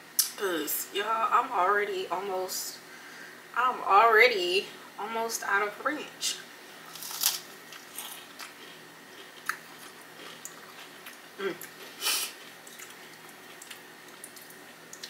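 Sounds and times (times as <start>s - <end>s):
food crunching: 6.9s - 15.0s
chewing mouth sounds: 7.2s - 15.0s.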